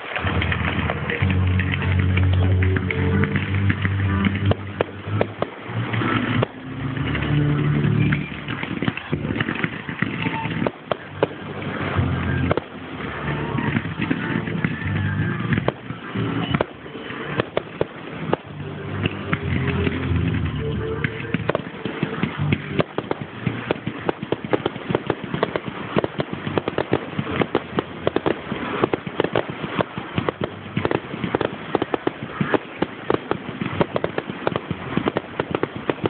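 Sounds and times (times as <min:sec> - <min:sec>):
fireworks crackling bangs: 0:00.0 - 0:36.0
music: 0:00.2 - 0:23.7.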